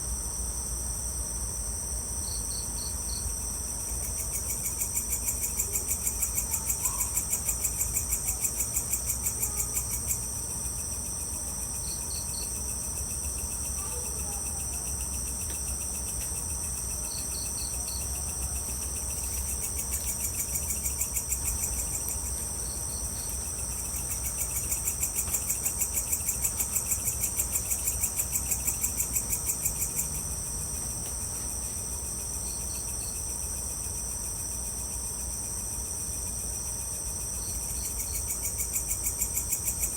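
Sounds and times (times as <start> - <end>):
insects buzzing: 0.0 - 39.9
pulsing insect trill: 0.2 - 39.9.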